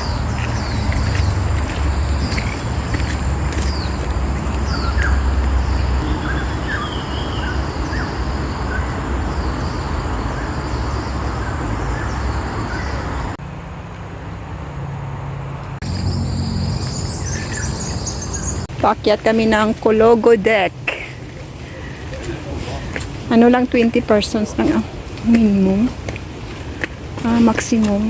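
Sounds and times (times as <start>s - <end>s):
high pulsing insect call: 0.0s - 13.4s, 15.8s - 18.7s
bird chirps: 4.6s - 13.3s, 15.8s - 18.7s
high insect buzz: 15.8s - 18.7s.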